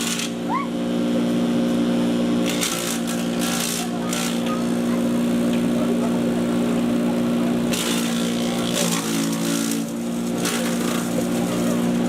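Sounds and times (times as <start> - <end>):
chipper shredder motor hum: 0.0 - 12.0.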